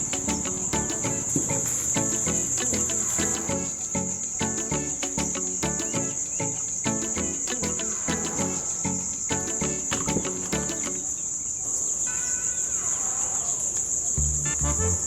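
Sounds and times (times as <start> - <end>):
plucked music: 0.0 - 11.2, 14.2 - 15.0
high-pitched insect drone: 0.0 - 11.3.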